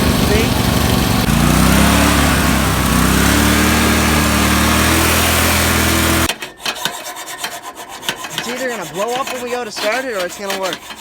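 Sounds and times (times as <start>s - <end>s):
small tractor engine running: 0.0s - 6.3s.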